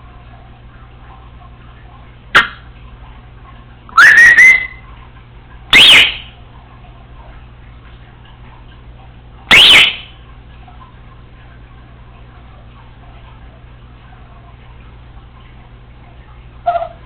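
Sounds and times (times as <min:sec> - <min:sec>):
parrot whistling: 0:04.0 - 0:04.8, 0:05.7 - 0:06.3, 0:09.5 - 0:10.1, 0:16.6 - 0:17.0.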